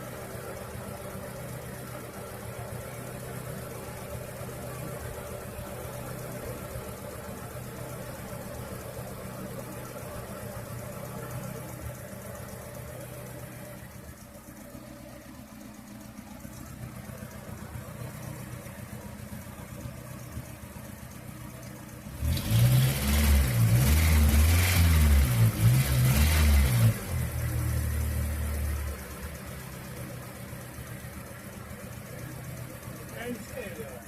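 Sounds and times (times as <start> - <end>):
car engine idling and revving: 0.0 - 34.0.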